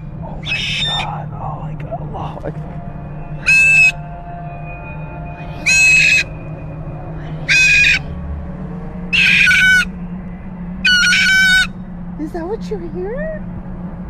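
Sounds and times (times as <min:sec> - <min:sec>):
parrot squawking: 0:00.4 - 0:01.2, 0:03.4 - 0:04.0, 0:05.4 - 0:06.3, 0:07.3 - 0:08.1, 0:09.1 - 0:09.9, 0:10.8 - 0:11.7.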